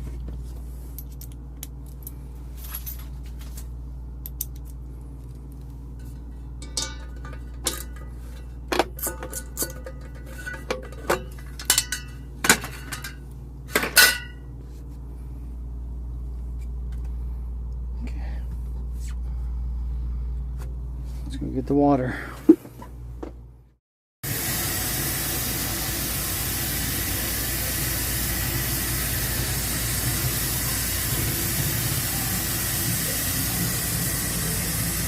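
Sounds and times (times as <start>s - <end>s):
steady low hum: 0.0s - 35.0s
metallic clinks and clanks: 6.0s - 13.2s.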